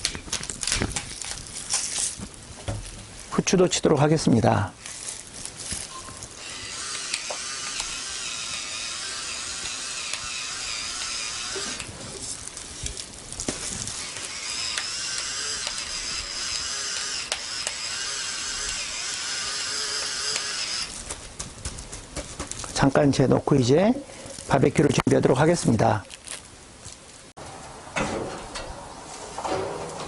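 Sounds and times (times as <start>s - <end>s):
pepper grinder grinding: 6.2s - 11.9s, 13.8s - 21.0s.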